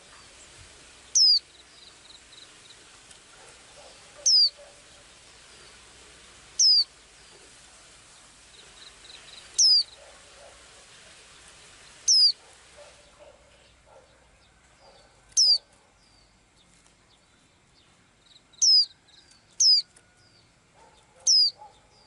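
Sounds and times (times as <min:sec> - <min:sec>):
small bird calling: 0:00.0 - 0:02.8, 0:03.4 - 0:05.8, 0:06.5 - 0:07.6, 0:08.6 - 0:10.6, 0:11.9 - 0:16.8, 0:18.3 - 0:20.0, 0:20.8 - 0:22.0
soft chirps: 0:01.1 - 0:02.8, 0:03.8 - 0:04.6, 0:06.6 - 0:07.5, 0:08.6 - 0:10.1, 0:12.0 - 0:12.4, 0:14.8 - 0:17.4, 0:18.2 - 0:20.0, 0:21.3 - 0:21.8.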